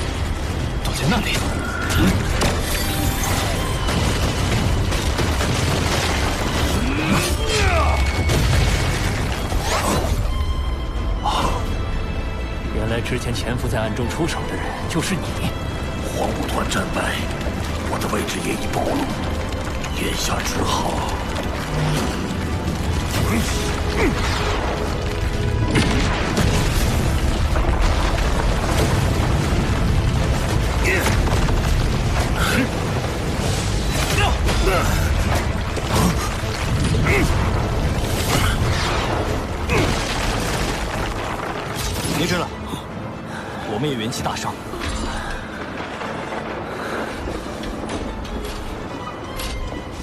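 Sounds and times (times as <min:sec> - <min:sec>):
booms: 0:00.0 - 0:10.3
background music: 0:00.0 - 0:50.0
loud rumble with booms: 0:15.5 - 0:43.0.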